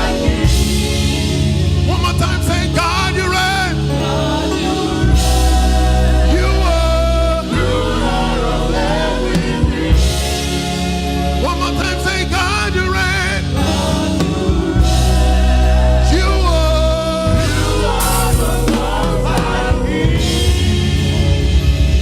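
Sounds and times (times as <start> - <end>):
band bass and drums: 0.0 - 22.0
gospel choir singing: 0.0 - 22.0.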